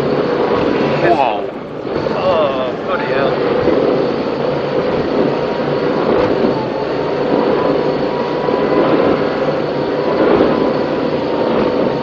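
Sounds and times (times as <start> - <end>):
powerboat engine: 0.0 - 12.0
wind rushing: 0.0 - 12.0.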